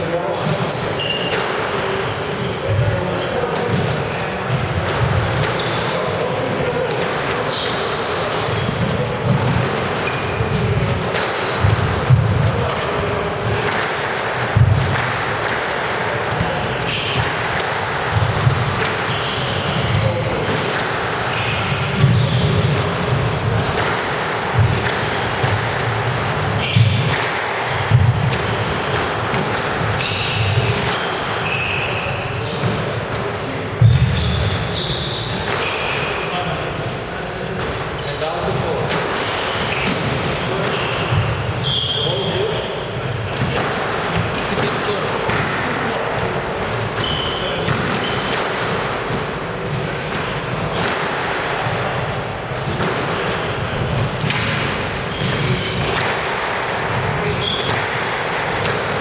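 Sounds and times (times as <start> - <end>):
shoes squeaking on court floor: 0.4 - 6.8, 7.4 - 10.9, 11.5 - 12.8, 18.1 - 20.5, 21.2 - 22.9, 26.5 - 32.8, 33.8 - 37.0, 39.4 - 43.5, 44.6 - 50.5, 54.8 - 56.0, 57.2 - 57.9
squash ball hits: 2.7 - 36.1, 38.5 - 42.5, 43.3 - 59.0.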